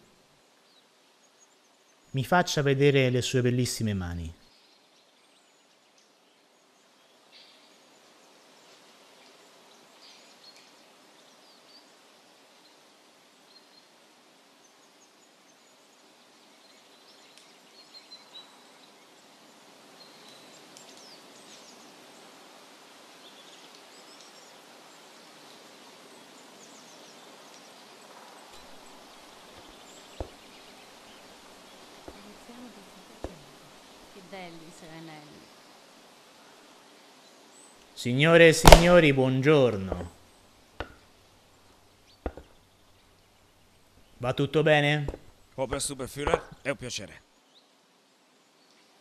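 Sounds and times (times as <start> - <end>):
sharp clicks: 38.6 - 39.2.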